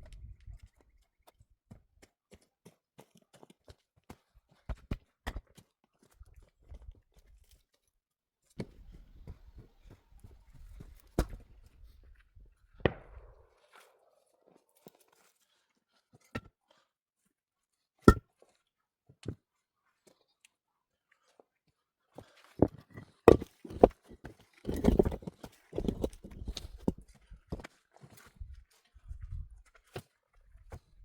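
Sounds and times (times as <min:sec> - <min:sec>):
knocks taps and crunching: 0:08.6 - 0:11.8, 0:12.9 - 0:13.4, 0:22.6 - 0:27.7.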